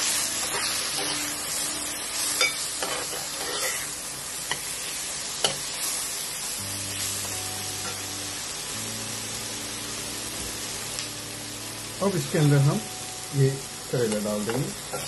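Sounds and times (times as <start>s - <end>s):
onions sizzling in hot oil: 0.0s - 15.0s
metal spoon scraping a pan: 2.4s - 3.9s.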